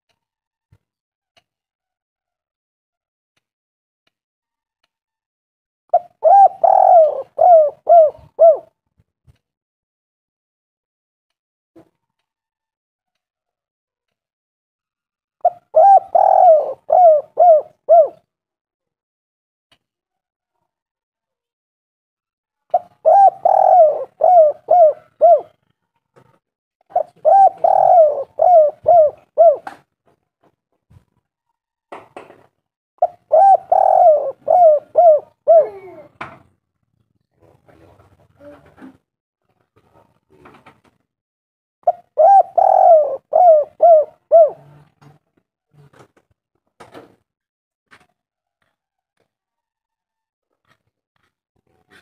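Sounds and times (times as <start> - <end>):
dove cooing: 5.9 - 8.7, 15.4 - 18.2, 22.7 - 25.7, 26.9 - 29.8, 33.0 - 36.2, 41.9 - 44.9.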